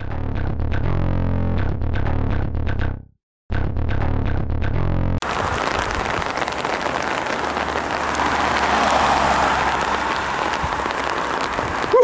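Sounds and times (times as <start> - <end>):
rain falling: 5.2 - 12.0.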